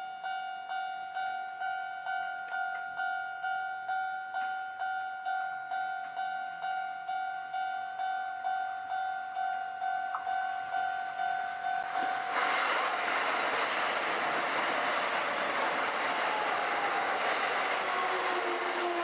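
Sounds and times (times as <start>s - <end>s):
electric train running past: 7.5s - 19.0s.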